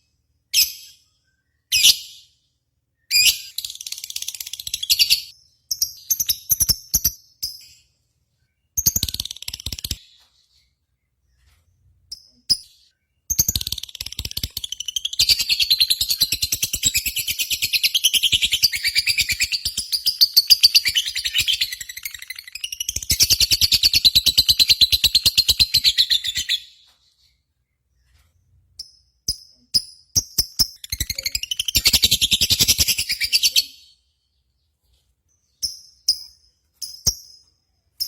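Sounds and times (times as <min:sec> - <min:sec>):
bird chirps: 0:00.0 - 0:38.0
bird chattering trill: 0:30.2 - 0:33.8.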